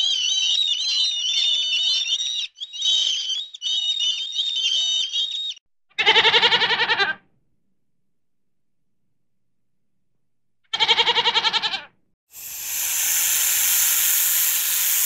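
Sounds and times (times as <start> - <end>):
goat bleating: 6.0 - 7.2, 10.7 - 11.9.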